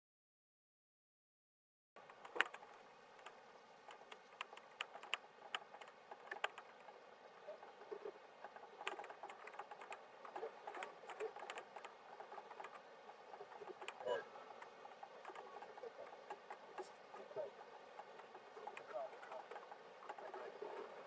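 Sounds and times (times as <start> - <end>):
faint light clicks and taps: 2.0 - 7.0
quiet steady hiss: 2.0 - 21.0.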